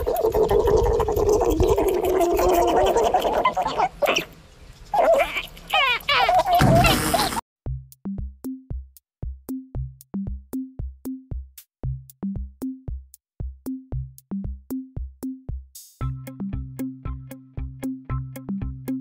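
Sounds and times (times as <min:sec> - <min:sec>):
drum machine beat: 0:07.7 - 0:19.0.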